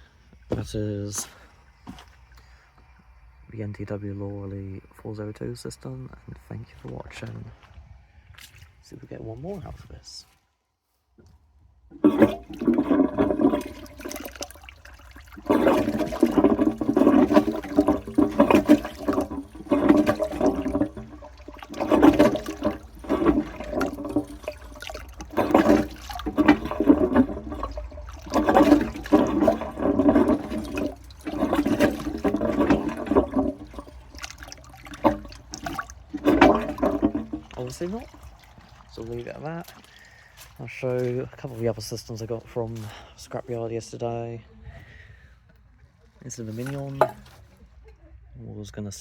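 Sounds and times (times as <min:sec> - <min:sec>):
water surging in cistern: 0:11.9 - 0:42.9, 0:46.3 - 0:47.4.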